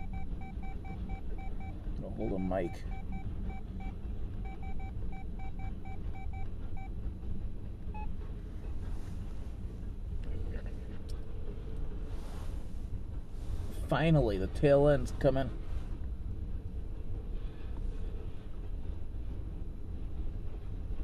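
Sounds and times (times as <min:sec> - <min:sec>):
short electronic beeps: 0:00.0 - 0:06.9
freight train rumbling past: 0:00.0 - 0:21.0.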